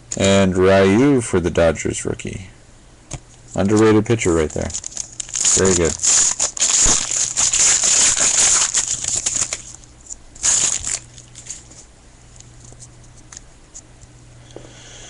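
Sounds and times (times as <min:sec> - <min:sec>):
foil wrapper crinkling: 0:03.6 - 0:11.9.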